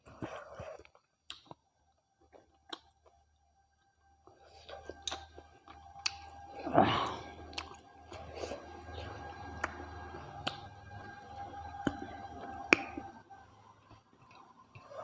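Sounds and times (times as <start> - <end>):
wet mouth eating noises: 0.0 - 1.6, 4.4 - 10.7
faint steady hum: 1.9 - 15.0.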